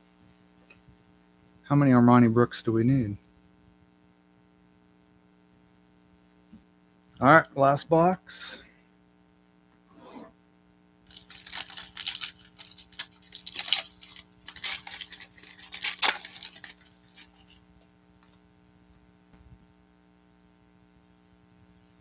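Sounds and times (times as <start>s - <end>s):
low mains hum: 0.0s - 22.0s
plastic wrapping crinkling and tearing: 11.1s - 17.9s.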